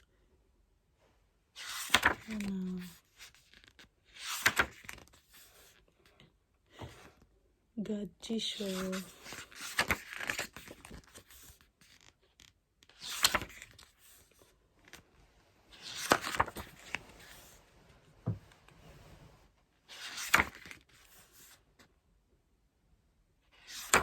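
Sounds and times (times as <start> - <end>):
paper and plastic packaging rustling: 15.8 - 17.6.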